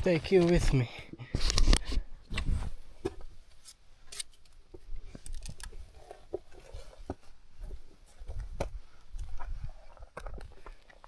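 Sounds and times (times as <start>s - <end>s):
footsteps on rocky ground: 6.1s - 11.0s.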